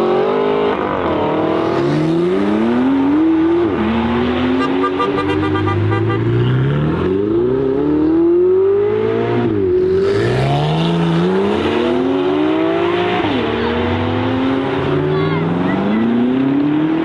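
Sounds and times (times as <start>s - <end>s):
sports car engine accelerating: 5.2s - 17.0s.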